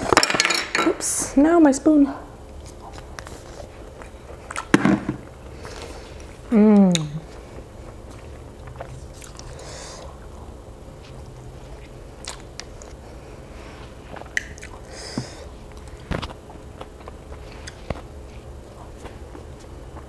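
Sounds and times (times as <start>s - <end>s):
person chewing food: 5.3s - 20.0s.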